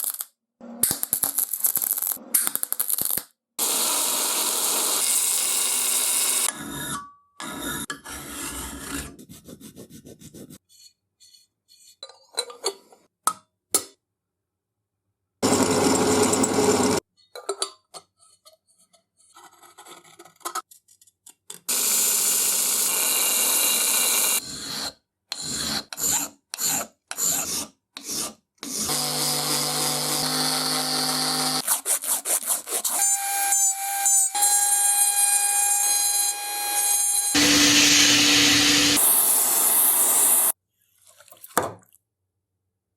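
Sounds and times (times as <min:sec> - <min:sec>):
power tool motor whining: 0:36.3 - 0:40.5.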